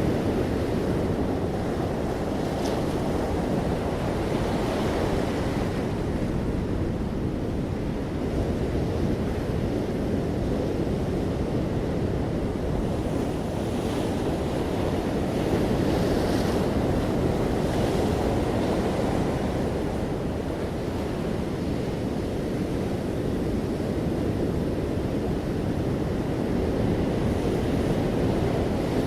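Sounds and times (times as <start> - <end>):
sea waves washing onto shore: 0.0 - 8.8.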